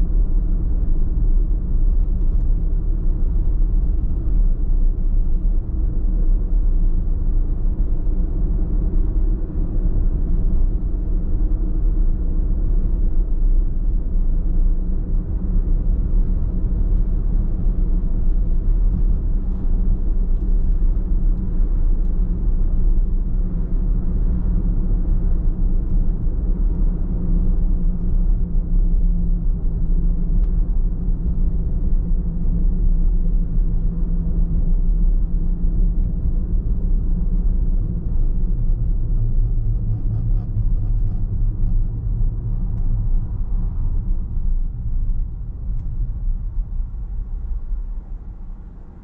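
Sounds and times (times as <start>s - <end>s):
car road and engine rumble: 0.0s - 49.0s.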